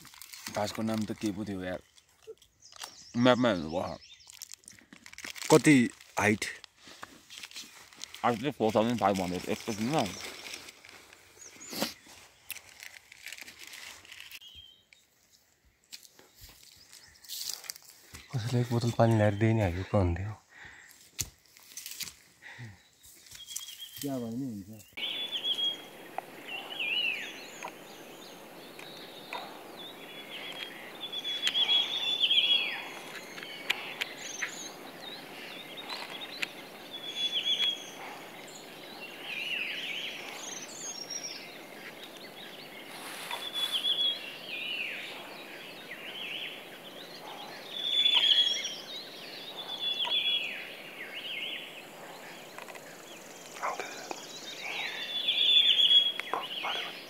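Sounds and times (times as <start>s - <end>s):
thin high bird chirps: 23.0s - 57.0s
pheasant calling: 25.0s - 57.0s.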